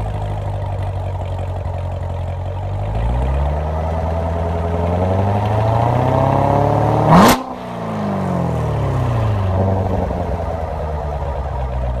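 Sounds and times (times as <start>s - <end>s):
exhaust crack: 0.0s - 12.0s
car engine revving: 2.7s - 12.0s.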